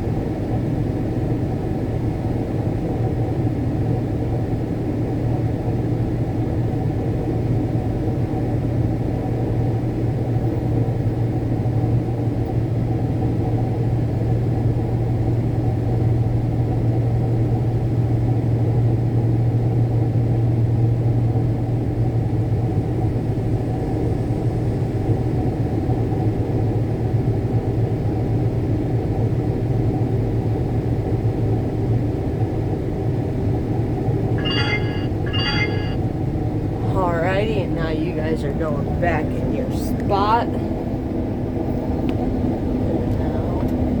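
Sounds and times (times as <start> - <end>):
low hum: 34.4 - 36.0
short electronic beeps: 34.4 - 36.0.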